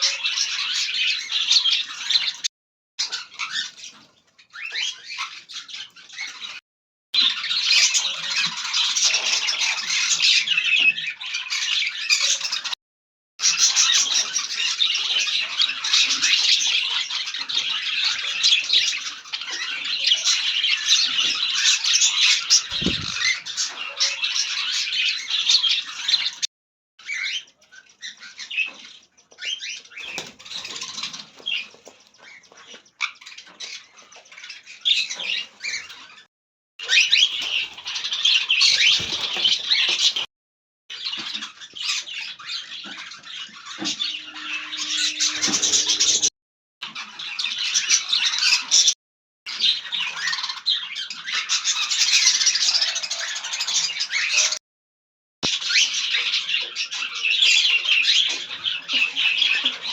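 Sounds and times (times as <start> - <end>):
parrots chattering and squawking: 13.5 - 36.2, 40.9 - 46.3.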